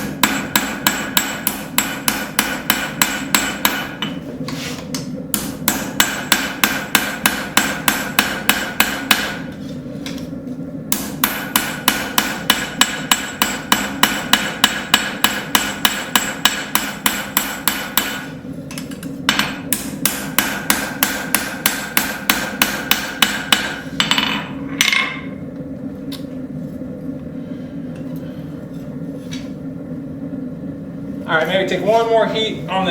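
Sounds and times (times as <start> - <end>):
hammer striking metal on anvil: 0.0 - 4.2, 5.3 - 9.5, 10.9 - 25.4
steady hum: 0.0 - 32.9.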